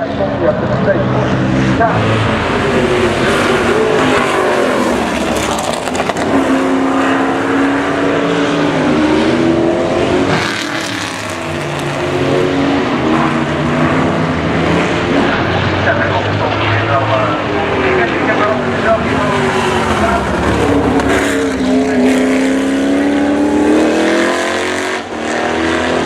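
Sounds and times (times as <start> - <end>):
race car engines running hard: 0.0 - 26.0.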